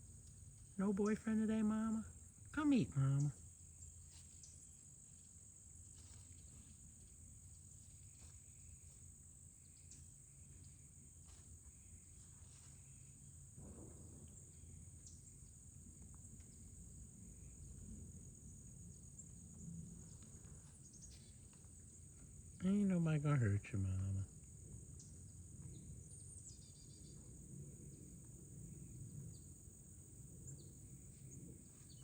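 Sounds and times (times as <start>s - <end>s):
faint insect trill: 0.0s - 32.0s
faint ticks: 9.6s - 10.8s.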